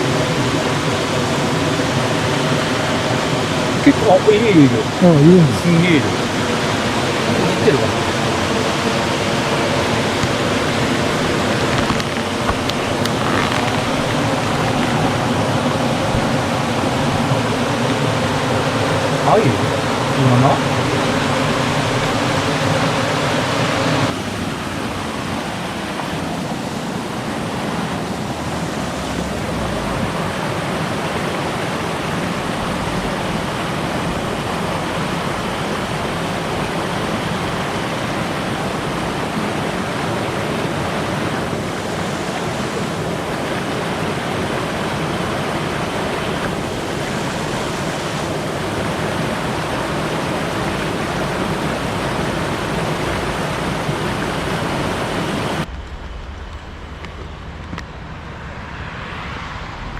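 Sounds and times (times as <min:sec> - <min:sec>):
stream water rushing: 0:00.0 - 0:55.7
low hum: 0:55.6 - 0:59.9.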